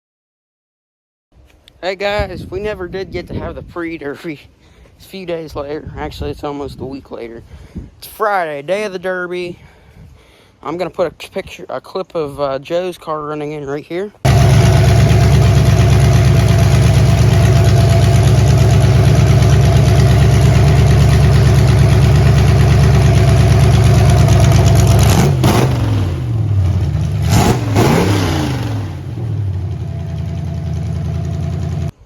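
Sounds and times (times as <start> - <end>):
car engine running and revving: 14.3 - 31.9.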